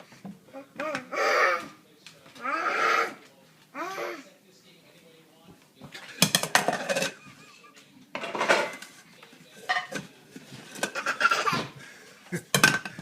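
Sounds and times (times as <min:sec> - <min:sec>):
dishes and cutlery clattering: 0:05.8 - 0:11.8, 0:12.4 - 0:13.0.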